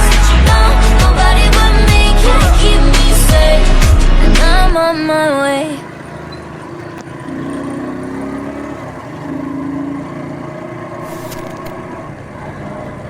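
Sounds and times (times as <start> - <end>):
vehicle engine drone: 0.0 - 13.0
road and wind noise: 3.4 - 13.0
brief clicks: 11.1 - 11.8.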